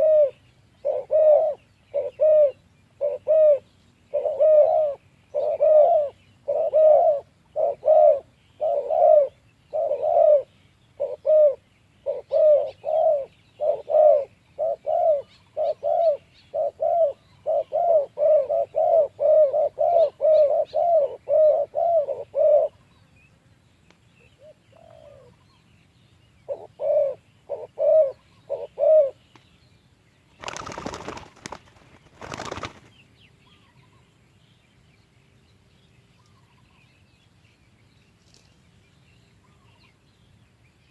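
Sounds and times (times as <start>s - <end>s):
doves cooing: 0.0s - 22.9s, 24.4s - 25.5s, 26.4s - 29.2s, 30.4s - 32.9s.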